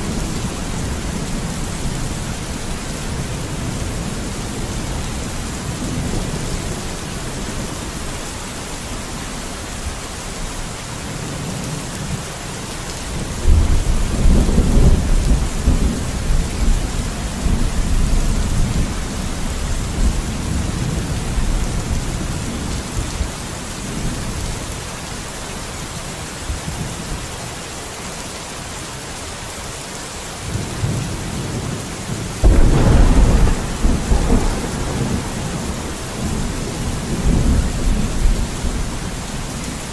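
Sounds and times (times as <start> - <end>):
steady rain: 0.0 - 39.9
rolling thunder: 32.4 - 39.8.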